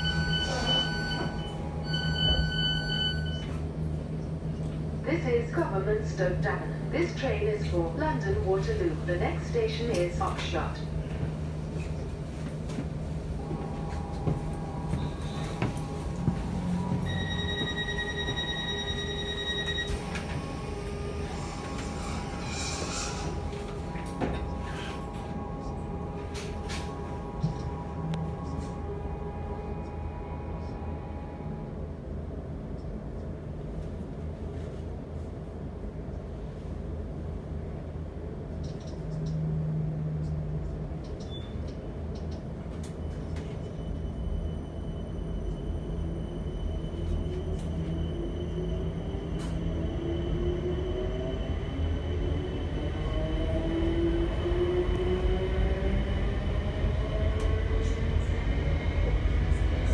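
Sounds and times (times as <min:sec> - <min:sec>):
door-closing warning tone: 0:00.0 - 0:03.6, 0:16.9 - 0:20.9
train equipment humming: 0:00.0 - 0:59.9.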